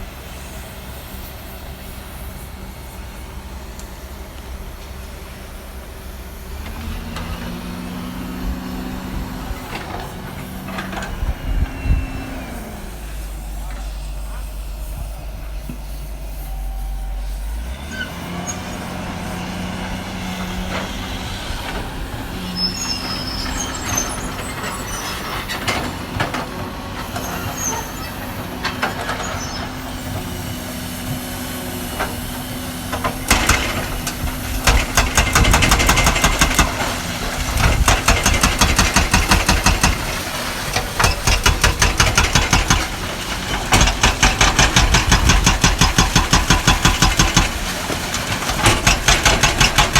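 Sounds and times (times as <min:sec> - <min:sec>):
excavator diesel engine running: 0:00.0 - 0:49.9
knocks and clatter: 0:32.9 - 0:49.9.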